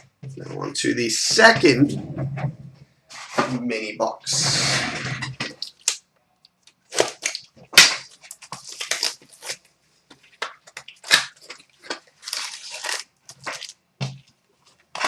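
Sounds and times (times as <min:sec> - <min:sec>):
packaging crinkling and tearing: 0:06.7 - 0:13.8.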